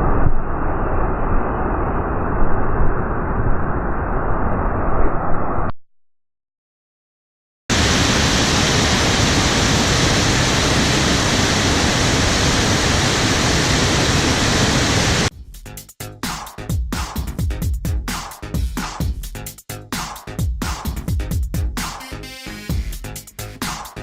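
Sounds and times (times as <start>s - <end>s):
dull rushing noise: 7.7s - 15.3s
floodwater rushing: 7.7s - 15.3s.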